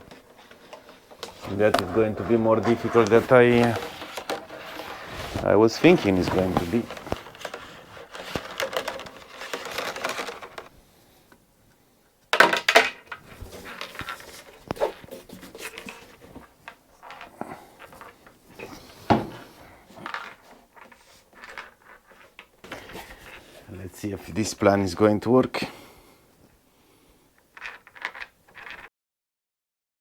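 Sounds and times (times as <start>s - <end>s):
scraping and rustling: 0.0s - 11.2s, 12.5s - 25.0s.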